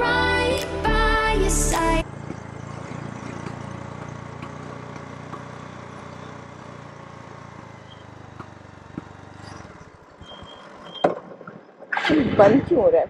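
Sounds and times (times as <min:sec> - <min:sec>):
motorcycle engine stalling: 0:02.0 - 0:12.9.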